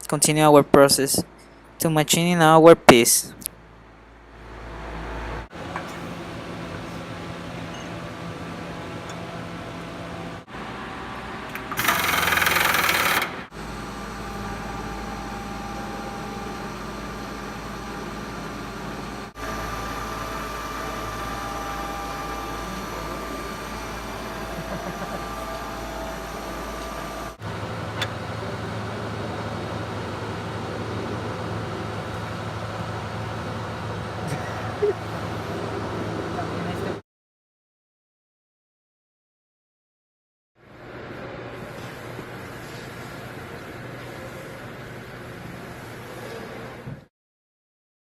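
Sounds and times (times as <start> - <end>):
milling machine humming and whining: 4.4 - 37.0.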